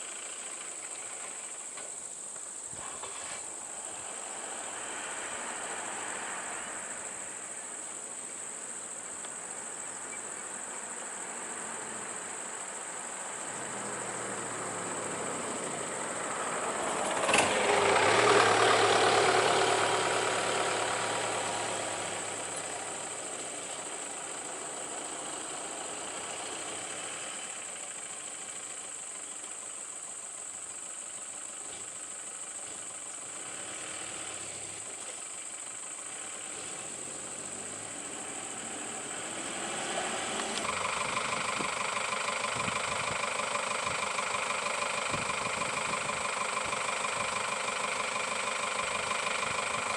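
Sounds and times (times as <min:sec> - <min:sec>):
truck engine idling: 0:15.9 - 0:33.5, 0:40.4 - 0:49.9.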